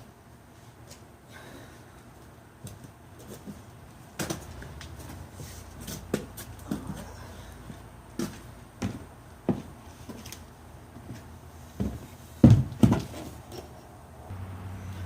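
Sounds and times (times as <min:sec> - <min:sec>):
sharp knocks and clunks: 0:12.4 - 0:13.3.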